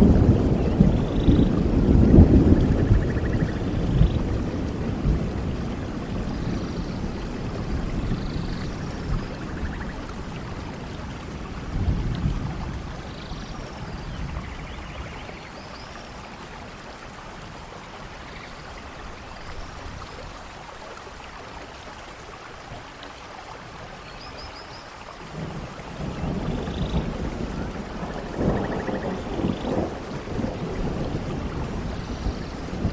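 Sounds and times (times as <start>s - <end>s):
rolling thunder: 0.0s - 15.5s, 25.3s - 32.9s
heavy rain: 0.0s - 32.9s.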